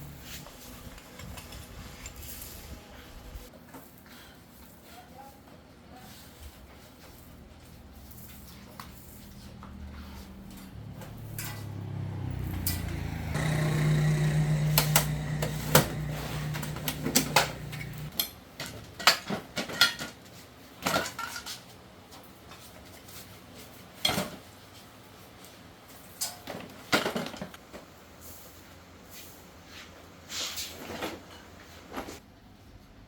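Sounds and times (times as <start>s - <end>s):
thresher motor humming: 11.6s - 18.1s.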